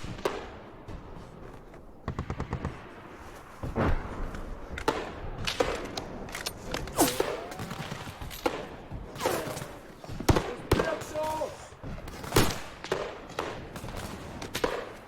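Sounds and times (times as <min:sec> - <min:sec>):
rifle shots: 0:06.9 - 0:11.5.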